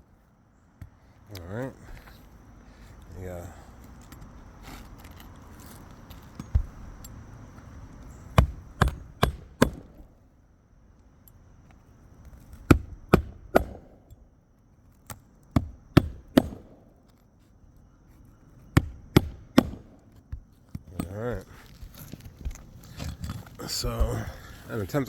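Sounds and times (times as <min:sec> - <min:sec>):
hammer striking shingle roof: 0:08.3 - 0:10.2, 0:12.5 - 0:14.2, 0:15.1 - 0:17.1, 0:18.6 - 0:21.6.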